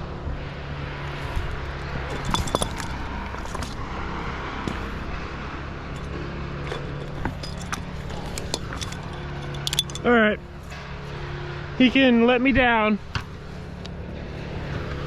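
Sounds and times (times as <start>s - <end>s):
engine idling: 0.0s - 15.0s
light metallic clicks: 6.0s - 10.1s.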